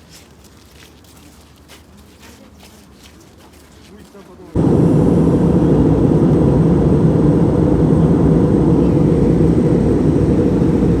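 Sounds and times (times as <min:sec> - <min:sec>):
vehicle rumbling in motion: 0:04.6 - 0:11.0.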